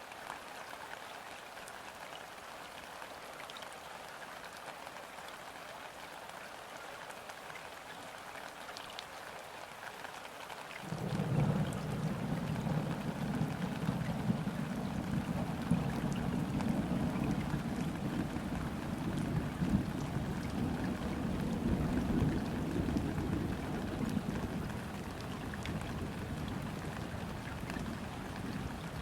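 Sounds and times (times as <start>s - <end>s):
rain falling on a river: 0.0s - 29.0s
distant thunder rumbling: 10.9s - 29.0s.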